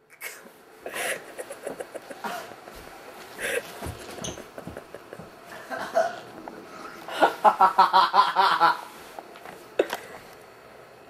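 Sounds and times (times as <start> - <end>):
person laughing hard: 0.9 - 2.6, 3.4 - 6.3, 7.1 - 8.9.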